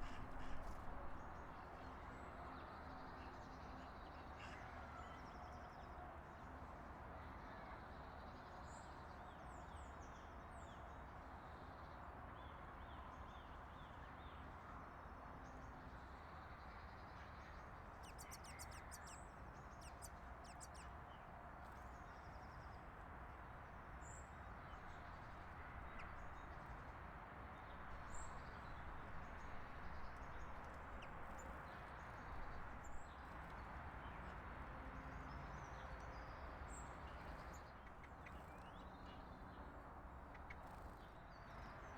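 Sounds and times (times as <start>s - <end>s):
small birds chirping: 0.0s - 1.3s, 18.0s - 20.9s.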